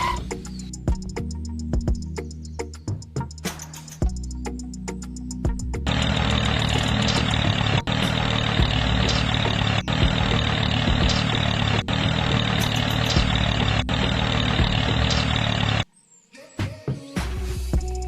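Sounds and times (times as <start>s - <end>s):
engine idling: 5.8s - 15.9s.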